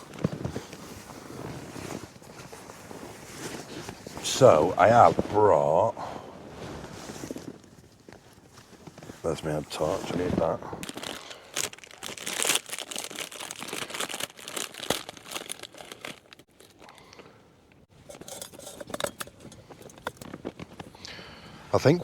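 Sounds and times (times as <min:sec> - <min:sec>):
plastic packaging crinkling: 0:09.8 - 0:17.0.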